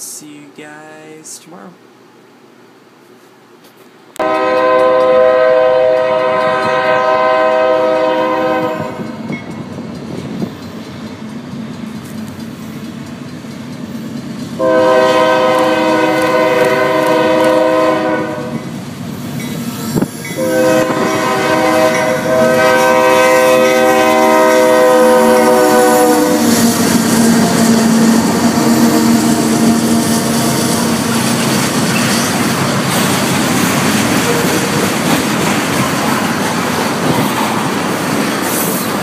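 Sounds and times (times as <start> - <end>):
train air horn blasts: 4.2 - 9.2, 14.6 - 18.6, 19.8 - 31.3
freight train rumbling past: 4.2 - 39.0
wheels clacking over rail joints: 30.9 - 39.0.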